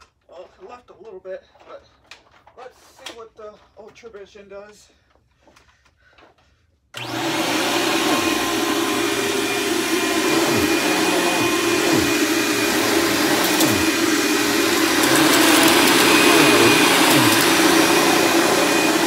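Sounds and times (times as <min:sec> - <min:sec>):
upright vacuum cleaner running: 0:07.0 - 0:19.0.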